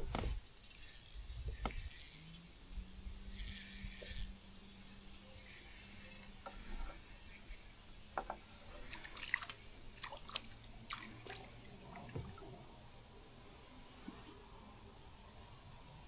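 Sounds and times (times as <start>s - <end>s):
water dripping and trickling: 8.9s - 12.7s.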